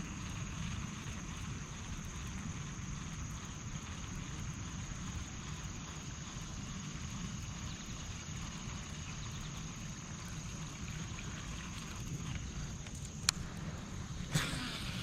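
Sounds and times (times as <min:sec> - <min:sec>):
thin high hiss: 0:12.8 - 0:15.0.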